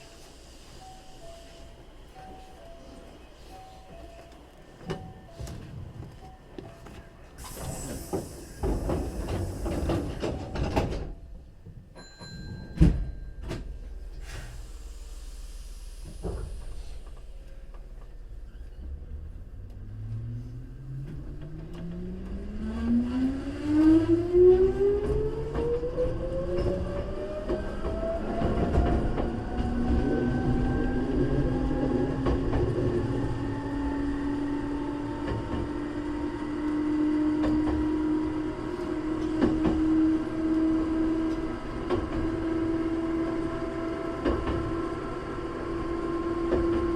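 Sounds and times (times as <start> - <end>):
air hissing: 7.4 - 10.2, 14.2 - 17.4.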